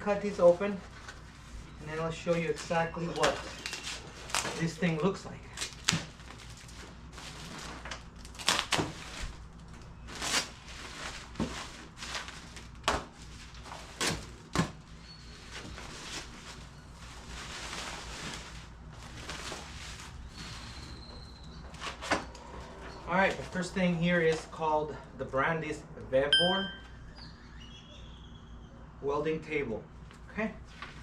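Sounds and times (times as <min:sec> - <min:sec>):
cardboard rustling and scraping: 0:05.8 - 0:09.4, 0:10.0 - 0:20.8.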